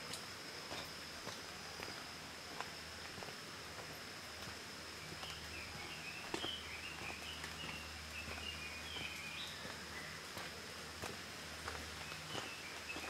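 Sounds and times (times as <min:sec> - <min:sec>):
footsteps on muddy trail: 0:00.7 - 0:13.0
songbird chirping: 0:05.0 - 0:10.5, 0:11.7 - 0:13.0.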